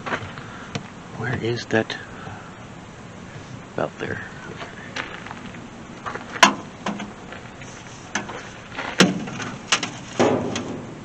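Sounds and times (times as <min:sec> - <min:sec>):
sharp knocks and clanks: 0:06.4 - 0:07.2, 0:08.1 - 0:10.9.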